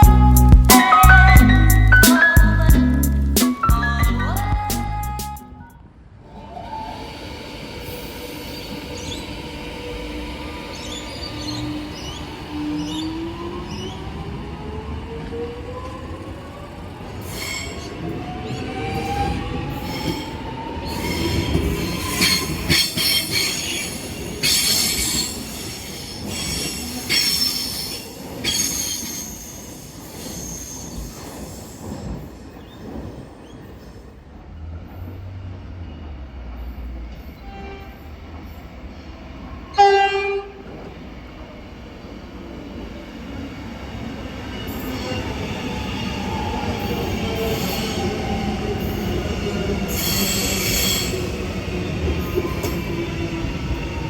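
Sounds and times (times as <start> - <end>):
wheels screeching on rails: 6.2 - 54.0
electric train motors whining: 6.3 - 31.5
train horn blast: 37.4 - 38.2, 39.7 - 40.6.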